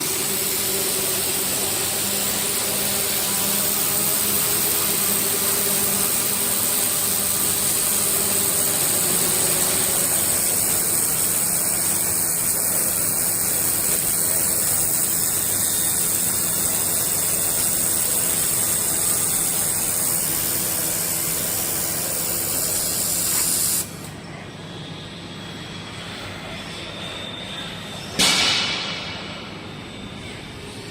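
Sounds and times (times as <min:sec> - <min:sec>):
loud steady hiss: 0:00.0 - 0:24.1.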